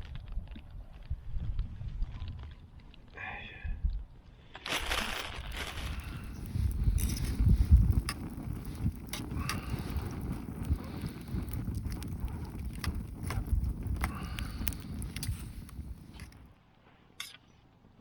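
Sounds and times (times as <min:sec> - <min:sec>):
wind rumbling on microphone: 0:00.0 - 0:16.5
sharp clicks and cracks: 0:04.6 - 0:16.5.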